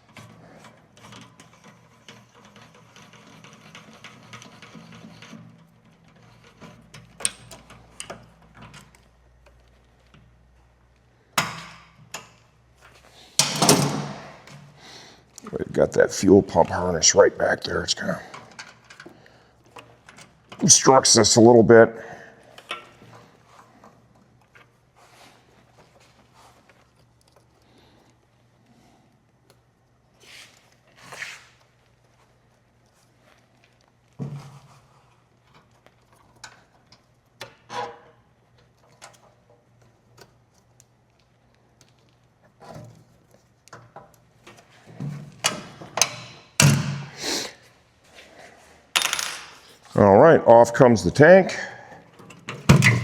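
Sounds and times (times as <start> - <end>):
brushing scraping noises: 30.2 - 31.6.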